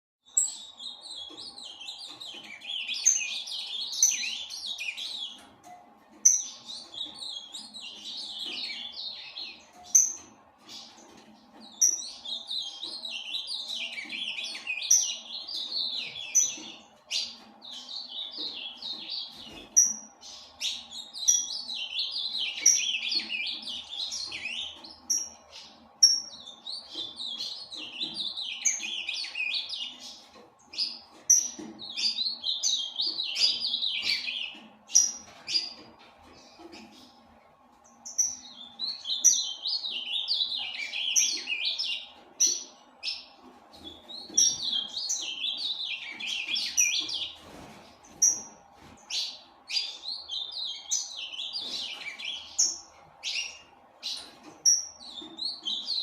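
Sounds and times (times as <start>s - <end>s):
bird singing warbling phrases: 10.8s - 35.8s, 37.9s - 47.4s.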